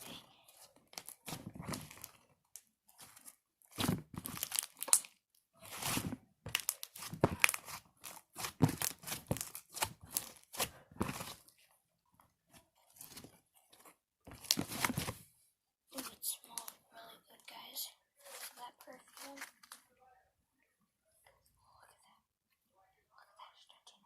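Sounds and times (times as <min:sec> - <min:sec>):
slime crackling and popping: 0:02.9 - 0:11.3.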